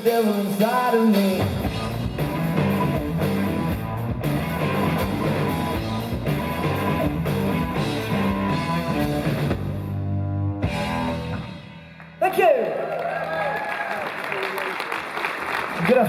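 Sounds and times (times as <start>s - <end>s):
live rock band playing: 0.0s - 12.2s.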